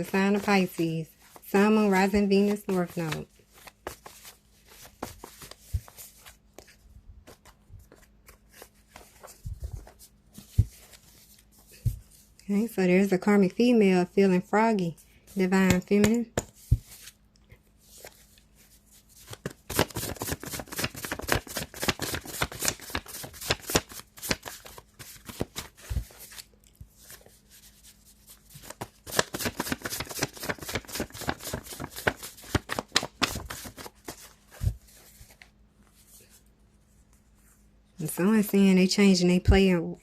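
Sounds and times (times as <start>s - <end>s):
cards shuffled by hand: 0.0s - 0.8s, 2.4s - 12.3s, 15.7s - 36.4s.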